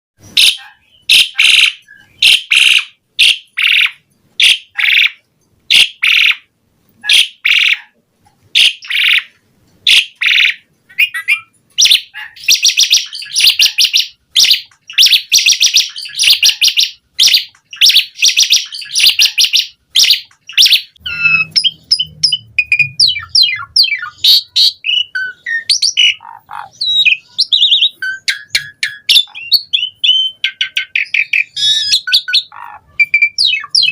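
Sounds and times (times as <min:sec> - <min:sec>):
starling singing: 0:00.3 - 0:08.0, 0:08.6 - 0:33.9.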